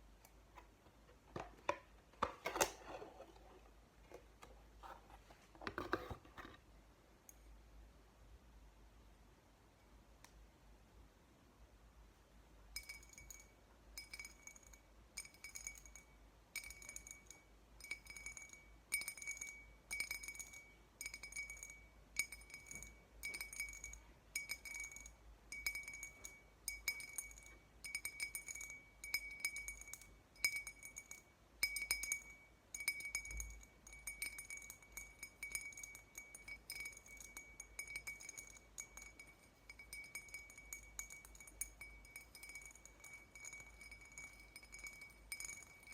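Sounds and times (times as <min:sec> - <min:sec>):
tapping on glassware: 0:16.6 - 0:45.9.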